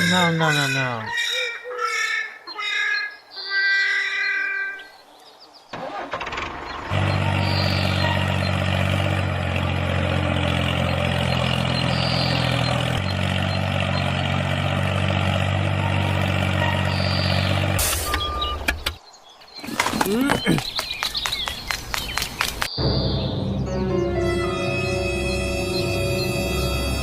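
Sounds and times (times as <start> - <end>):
tractor engine running: 0.0 - 1.2, 5.8 - 19.0.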